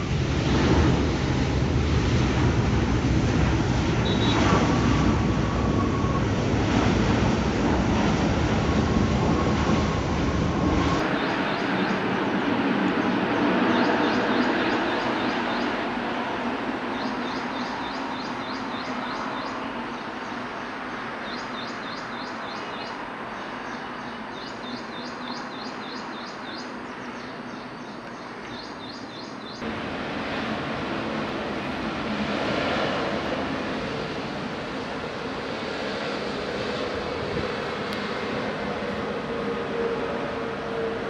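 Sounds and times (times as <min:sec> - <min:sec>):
jet engine noise: 0:00.0 - 0:41.0
birds chirping: 0:04.0 - 0:04.6, 0:10.9 - 0:15.9, 0:16.9 - 0:29.7.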